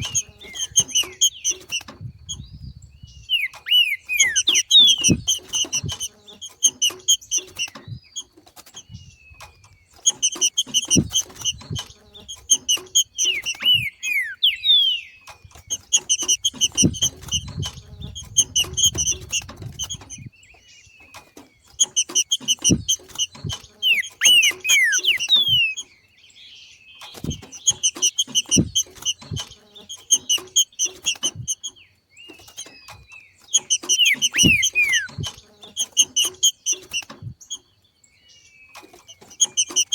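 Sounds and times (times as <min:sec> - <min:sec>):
bird calling rapid high notes: 0:03.3 - 0:05.5, 0:13.0 - 0:15.2, 0:23.7 - 0:25.8, 0:33.6 - 0:35.3
bird falling whistles: 0:23.8 - 0:25.8, 0:33.9 - 0:35.3.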